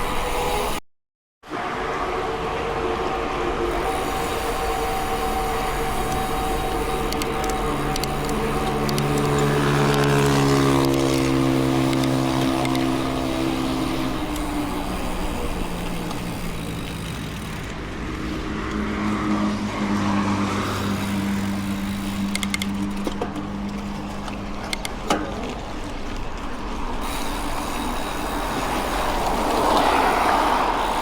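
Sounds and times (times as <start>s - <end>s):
engine hum: 1.4s - 31.0s
vehicle engine passing by: 1.5s - 24.6s, 28.5s - 31.0s.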